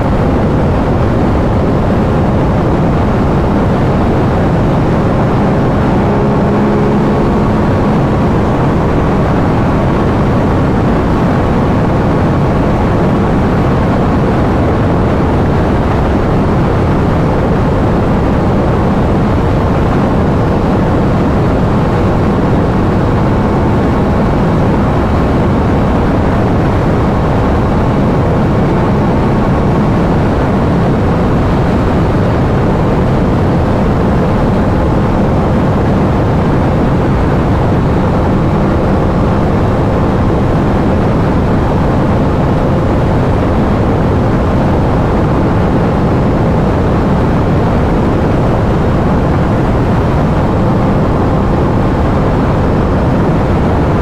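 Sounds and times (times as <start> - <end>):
motorcycle engine cruising: 0.0 - 40.9
wind noise: 0.0 - 54.0.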